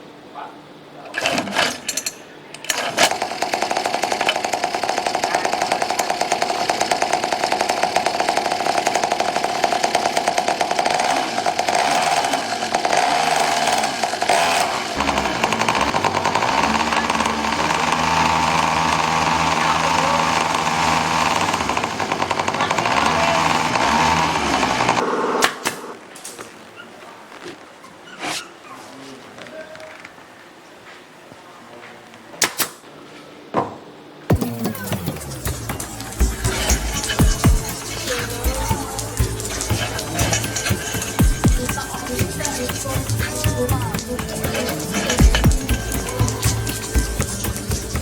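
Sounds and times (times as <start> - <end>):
engine starter clicks: 1.1 - 25.9, 34.3 - 48.0
small motorcycle engine running: 2.7 - 25.2, 34.3 - 48.0
deeper steady engine note: 15.0 - 25.0.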